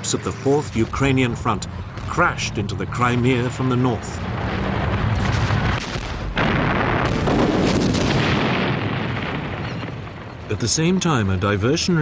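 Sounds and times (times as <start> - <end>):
artillery gunfire and explosions: 0.0 - 11.7
loud blast: 0.8 - 10.4.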